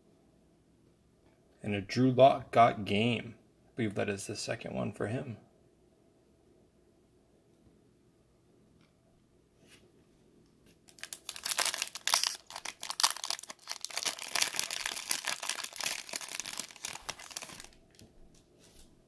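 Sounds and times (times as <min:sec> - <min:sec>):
foil wrapper tearing and crinkling: 0:10.9 - 0:18.0.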